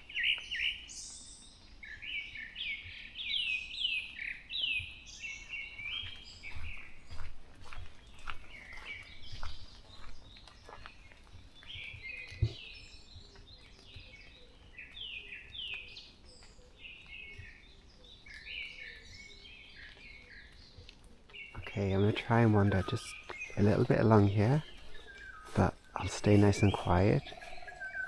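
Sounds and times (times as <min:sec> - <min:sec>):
songbirds singing: 0:00.0 - 0:28.0.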